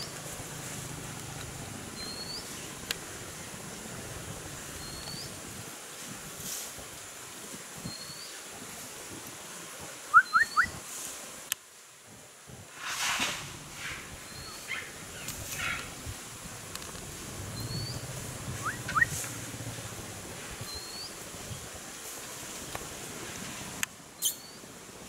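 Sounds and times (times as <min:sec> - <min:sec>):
upward whistled bird chirps: 0:10.1 - 0:10.8, 0:18.6 - 0:19.2
rustling: 0:12.8 - 0:14.1
thin high bird call: 0:24.2 - 0:24.6.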